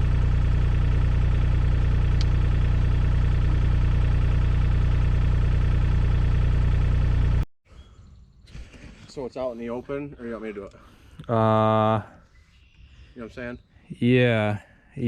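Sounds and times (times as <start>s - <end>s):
excavator diesel engine running: 0.0s - 7.4s.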